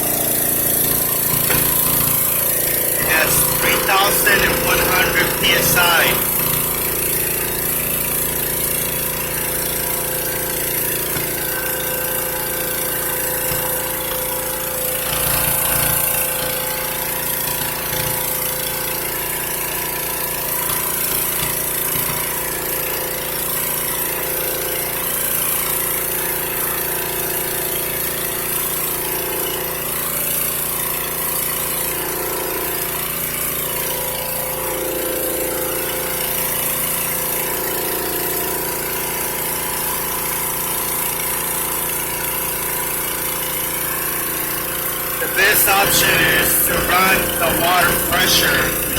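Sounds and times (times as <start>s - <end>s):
hydro-jetter engine and pump droning: 0.0s - 17.4s.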